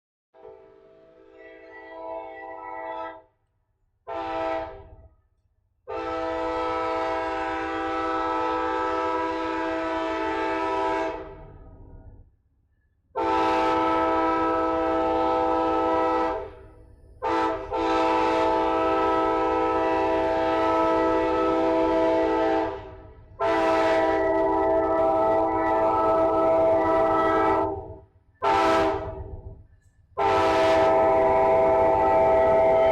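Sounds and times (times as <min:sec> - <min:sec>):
locomotive air horn blasts: 0:04.1 - 0:04.9, 0:05.9 - 0:11.5, 0:13.2 - 0:29.4, 0:30.2 - 0:32.9.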